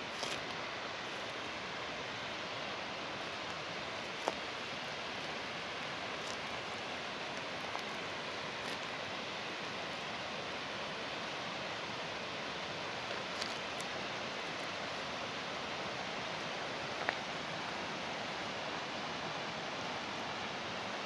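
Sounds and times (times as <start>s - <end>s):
flowing water rushing: 0.0s - 21.0s.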